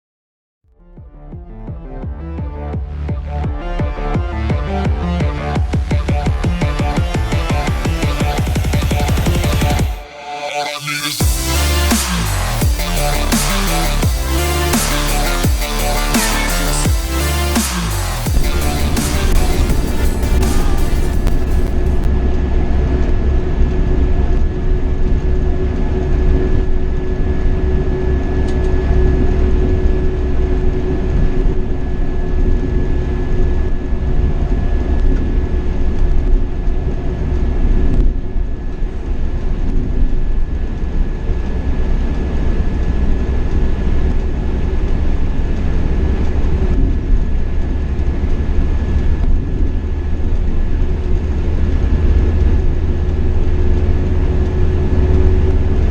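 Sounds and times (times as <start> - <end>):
coach engine drone: 0.8 - 55.9
road noise: 2.2 - 55.9.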